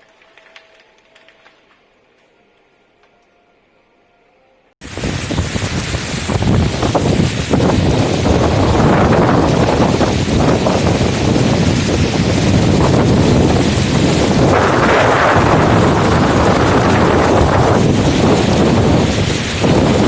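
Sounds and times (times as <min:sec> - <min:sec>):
heavy rain pouring: 0:04.8 - 0:20.0
wind buffeting microphone: 0:04.8 - 0:20.0.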